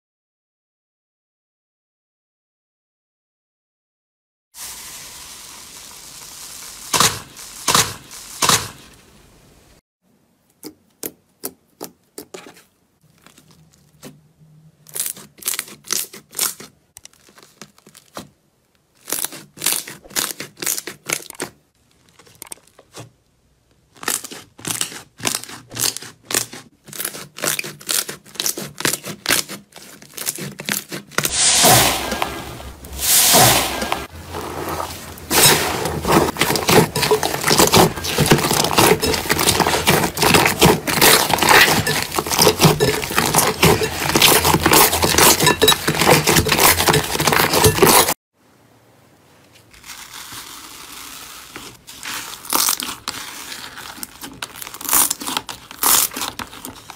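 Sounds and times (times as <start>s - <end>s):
crunchy slime crackling: 13.0s - 14.2s, 14.8s - 23.1s, 23.8s - 48.2s, 49.7s - 56.9s.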